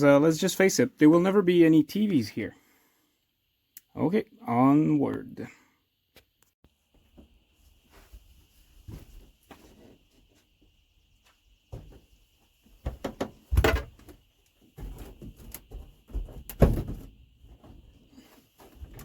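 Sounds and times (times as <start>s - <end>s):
panels knocking and clattering: 12.8s - 18.0s.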